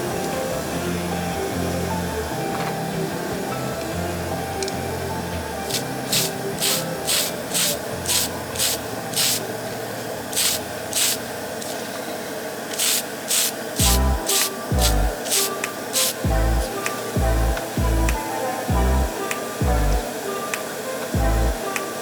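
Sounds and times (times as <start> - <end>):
background music: 0.0 - 11.4, 12.8 - 22.0
short hissing strokes: 5.7 - 9.5, 10.3 - 11.8, 12.7 - 16.8.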